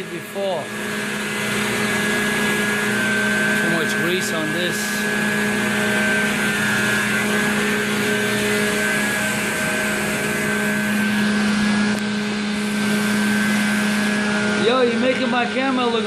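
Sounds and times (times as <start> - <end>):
electric pump motors humming: 0.0 - 16.0.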